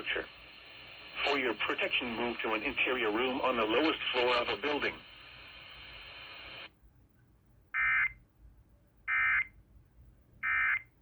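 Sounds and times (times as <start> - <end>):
radio static hiss: 0.0 - 6.7.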